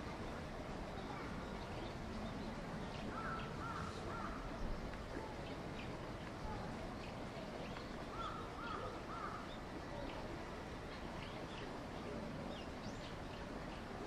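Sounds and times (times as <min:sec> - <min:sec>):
steady background hiss: 0:00.0 - 0:14.0
bird calls: 0:01.0 - 0:10.2.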